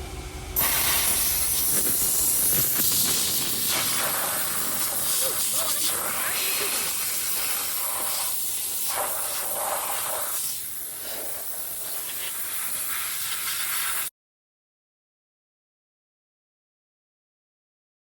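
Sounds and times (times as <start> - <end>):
air hose blowing: 0.6 - 14.1.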